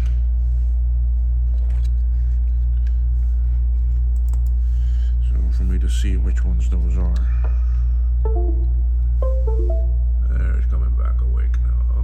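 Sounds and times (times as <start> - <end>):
air conditioner humming: 0.0 - 9.2.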